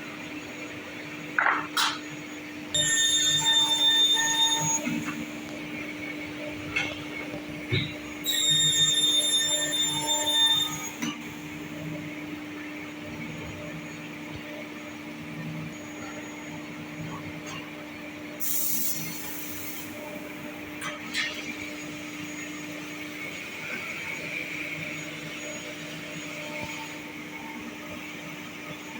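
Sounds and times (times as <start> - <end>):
high-pitched whine: 2.8 - 5.8.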